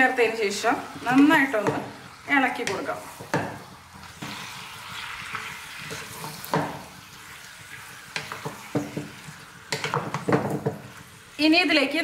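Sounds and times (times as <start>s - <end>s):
chicken sizzling in a pan: 0.0s - 12.0s
spatula knocking against pan: 1.2s - 1.9s, 6.5s - 6.8s, 8.2s - 10.8s.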